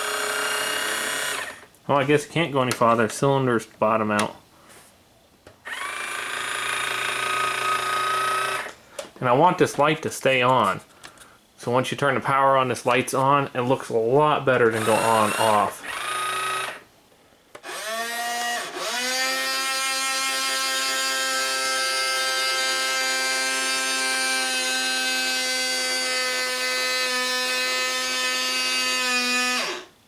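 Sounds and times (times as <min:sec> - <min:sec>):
small electric motor whining: 0:00.0 - 0:01.6, 0:05.6 - 0:08.8, 0:14.8 - 0:16.8, 0:17.6 - 0:30.0.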